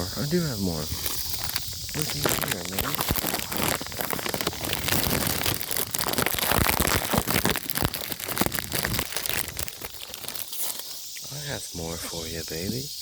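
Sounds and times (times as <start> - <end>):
bag crinkling and rustling: 0.8 - 11.2.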